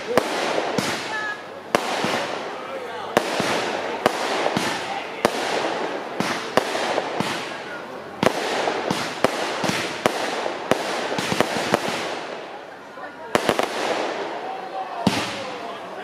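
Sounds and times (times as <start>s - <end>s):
firework shells bursting: 0.0s - 12.6s
fireworks crackling: 0.0s - 16.0s.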